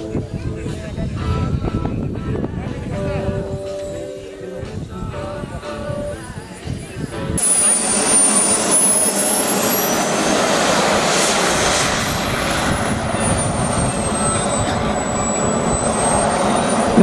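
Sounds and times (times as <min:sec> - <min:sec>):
model aircraft engine whine: 0:06.5 - 0:17.0.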